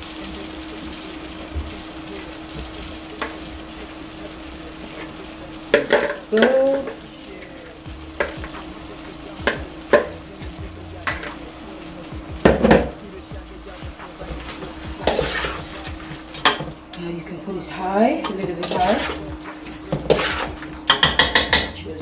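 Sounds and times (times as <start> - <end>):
onions sizzling in oil: 0.0 - 22.0
spoon scraping and knocking a bowl: 19.9 - 21.7.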